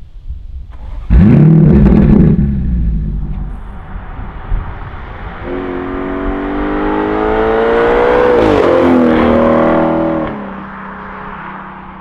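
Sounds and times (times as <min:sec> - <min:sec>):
car engine accelerating hard: 0:04.7 - 0:10.5.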